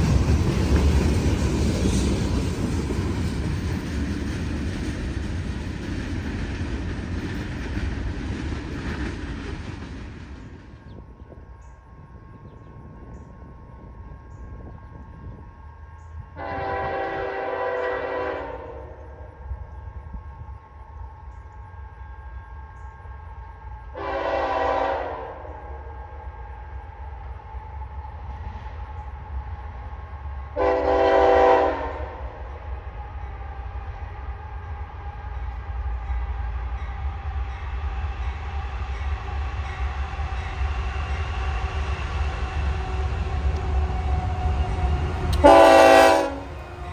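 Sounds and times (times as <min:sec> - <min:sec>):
low rumble of train: 0:00.0 - 0:46.9
locomotive air horn blast: 0:16.4 - 0:19.0, 0:24.0 - 0:25.6, 0:30.6 - 0:32.2, 0:42.8 - 0:46.9.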